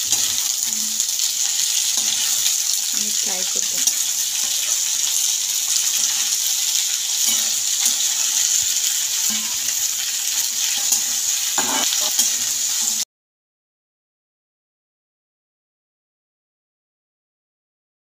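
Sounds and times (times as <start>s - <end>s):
okra sizzling in hot oil: 0.0s - 13.1s
spatula scraping a pan: 3.8s - 13.0s.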